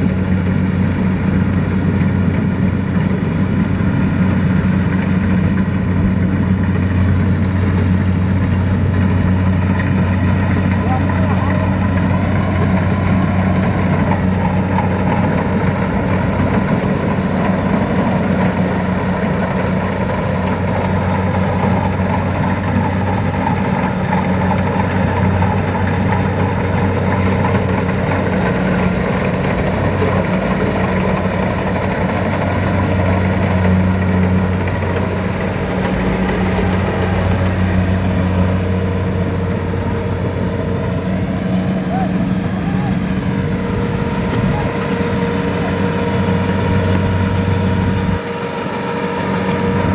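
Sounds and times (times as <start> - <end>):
tractor diesel engine droning: 0.0 - 49.9.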